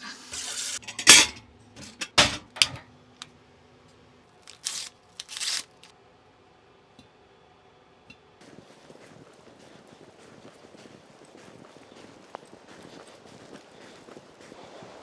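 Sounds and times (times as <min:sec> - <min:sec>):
handling rustles and scrapes: 0:00.0 - 0:02.8, 0:04.5 - 0:05.9.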